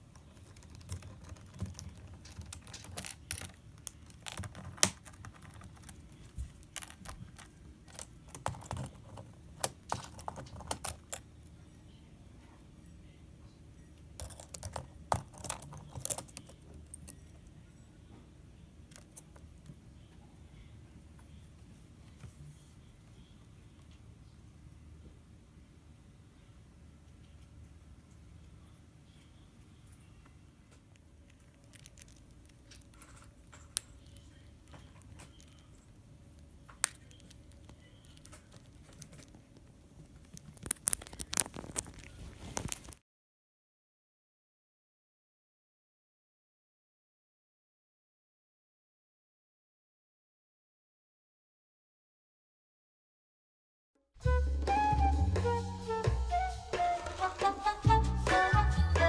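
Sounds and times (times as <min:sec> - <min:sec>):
keyboard keys clicking and rattling: 0:00.0 - 0:11.3, 0:14.1 - 0:17.5.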